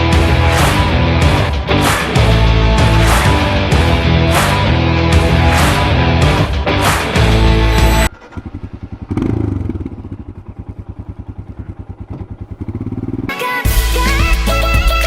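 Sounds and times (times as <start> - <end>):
music: 0.0 - 8.1, 13.3 - 15.0
motorcycle engine running: 7.2 - 14.9.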